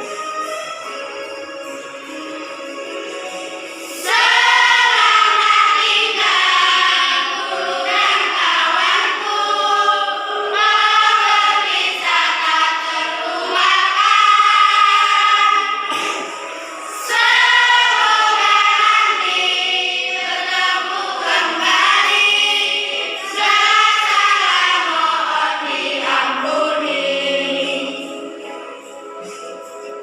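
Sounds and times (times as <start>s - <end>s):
children's choir singing: 0.0s - 30.0s.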